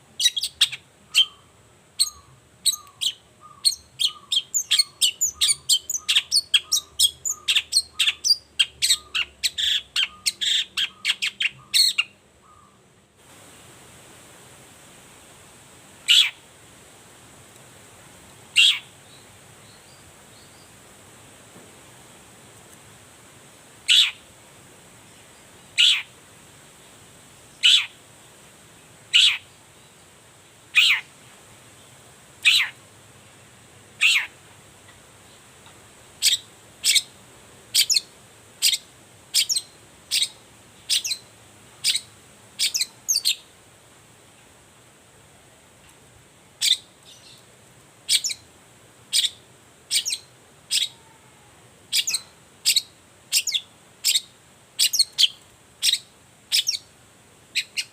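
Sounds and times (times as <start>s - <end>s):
shrike calling: 0.2s - 12.8s, 16.1s - 16.4s, 18.5s - 20.0s, 23.9s - 24.2s, 25.8s - 26.1s, 29.1s - 29.5s, 30.8s - 31.1s, 32.4s - 32.8s, 34.0s - 34.3s.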